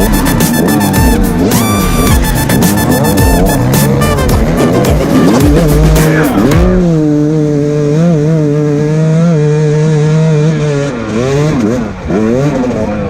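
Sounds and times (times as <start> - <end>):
music: 0.0 - 6.8
motorcycle engine revving: 0.0 - 13.0.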